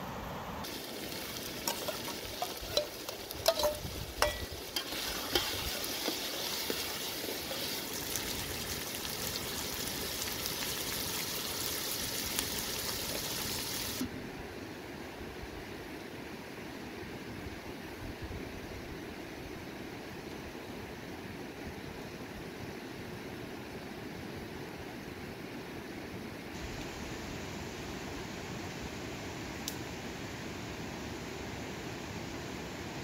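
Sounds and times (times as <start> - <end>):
vegetables sizzling in oil: 0.6 - 14.1
metal ladle scraping pot: 1.6 - 6.5.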